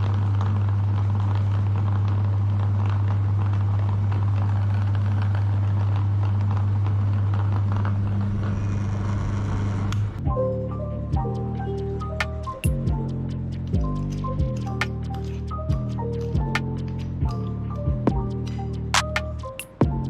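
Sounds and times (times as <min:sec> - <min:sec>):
crackles and scrapes of grinding: 0:00.0 - 0:10.2
electric meat grinder humming: 0:00.0 - 0:10.2.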